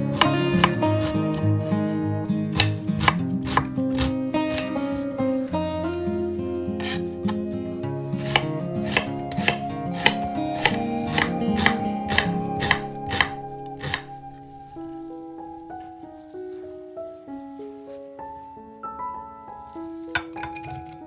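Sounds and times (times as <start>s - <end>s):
knife chopping on cutting board: 0.0s - 1.4s, 2.5s - 5.1s, 6.8s - 7.5s, 8.2s - 14.2s.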